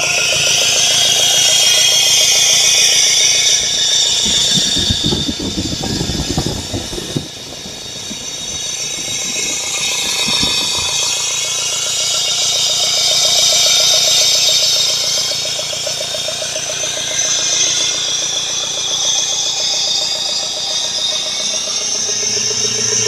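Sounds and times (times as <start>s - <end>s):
engine idling with ticking: 0.0s - 23.0s
low engine rumble: 3.2s - 12.3s.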